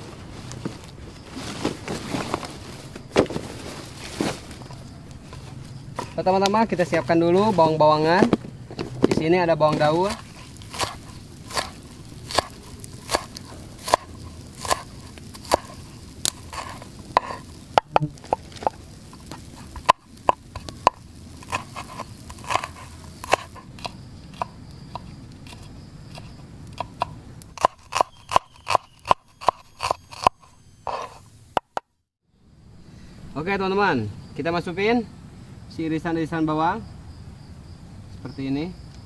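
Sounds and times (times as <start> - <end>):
knife chopping onions: 9.1 - 31.8.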